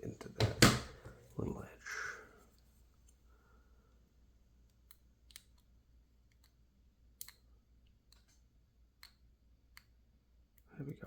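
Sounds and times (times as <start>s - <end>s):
faint metallic clicks of lock picks: 7.2s - 8.4s.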